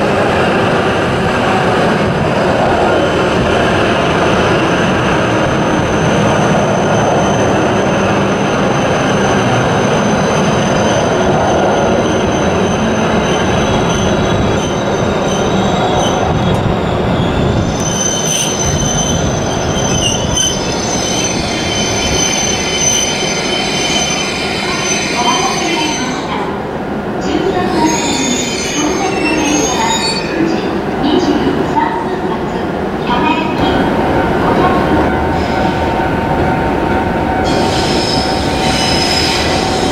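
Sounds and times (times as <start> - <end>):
high wheel squeal: 37.4 - 39.9.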